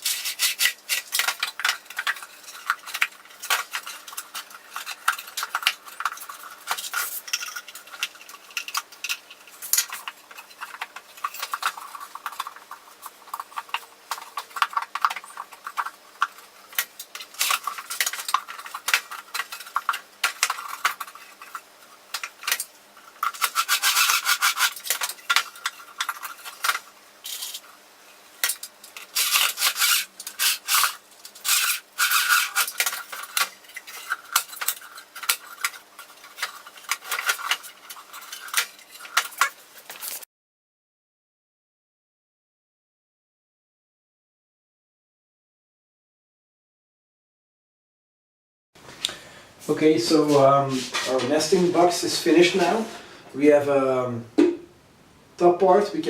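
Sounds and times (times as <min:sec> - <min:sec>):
hand tools scraping wood: 0:00.0 - 0:16.0, 0:17.1 - 0:27.7, 0:29.0 - 0:40.2.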